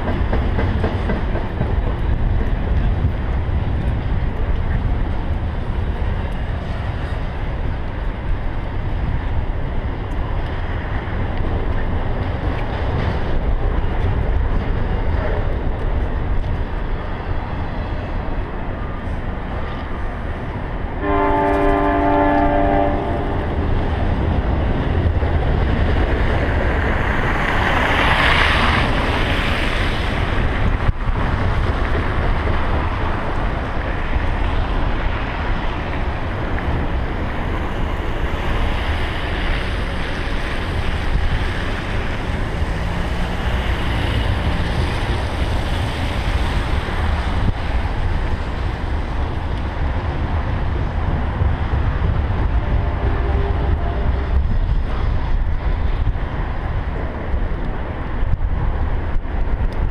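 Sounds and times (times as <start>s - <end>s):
freight train wheels rumbling: 0.0s - 59.9s
train air horn: 21.0s - 23.6s.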